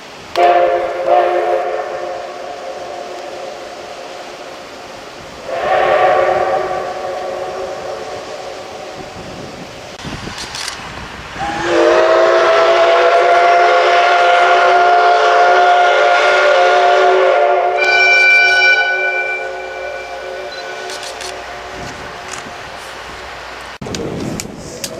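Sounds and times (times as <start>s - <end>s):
steam locomotive whistle: 0.4s - 4.2s, 5.4s - 9.0s, 11.4s - 21.9s.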